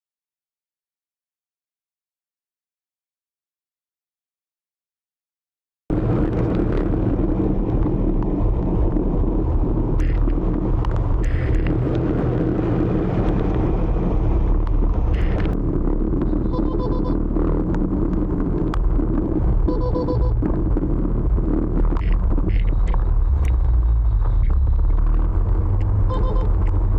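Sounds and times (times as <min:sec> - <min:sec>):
motor scooter engine and road rumble: 0:05.9 - 0:26.9
short beeping tones: 0:16.5 - 0:17.2, 0:19.7 - 0:20.4, 0:26.1 - 0:26.6.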